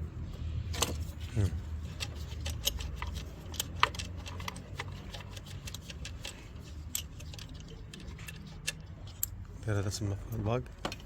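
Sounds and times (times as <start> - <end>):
metallic clicks of hand tools: 2.0 - 9.4.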